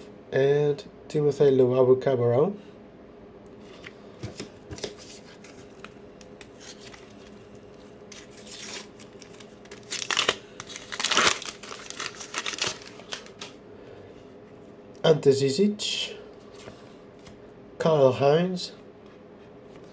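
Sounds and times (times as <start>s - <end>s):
paper wrapper tearing and crinkling: 5.8s - 13.6s.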